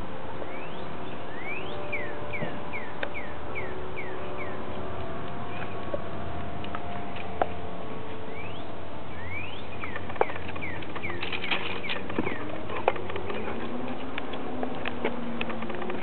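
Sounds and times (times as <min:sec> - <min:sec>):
small birds chirping: 0:08.1 - 0:14.2.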